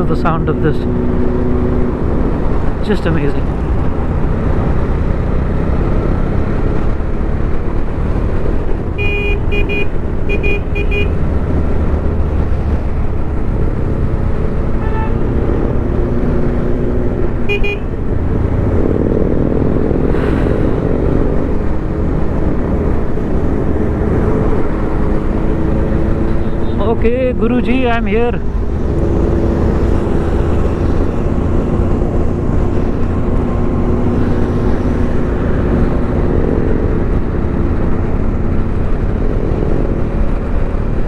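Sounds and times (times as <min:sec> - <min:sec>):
motorcycle engines running: 0:00.0 - 0:41.0
horn toots: 0:09.0 - 0:11.2, 0:14.8 - 0:15.4, 0:17.4 - 0:18.1.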